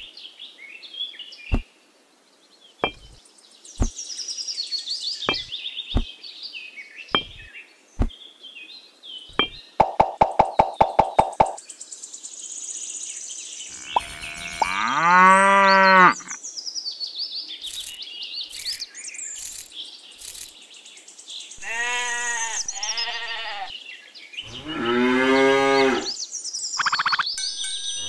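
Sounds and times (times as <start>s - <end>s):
birds chirping: 1.4s - 1.7s, 2.8s - 6.3s, 7.0s - 8.4s, 9.1s - 12.1s, 13.4s - 16.4s, 17.6s - 23.7s, 24.4s - 28.0s
cow mooing: 13.8s - 16.3s, 24.5s - 26.1s
rapid bleating call: 21.6s - 23.7s.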